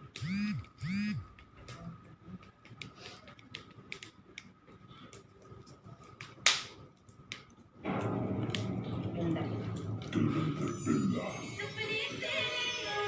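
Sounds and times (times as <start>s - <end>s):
music with singing: 10.7s - 13.0s.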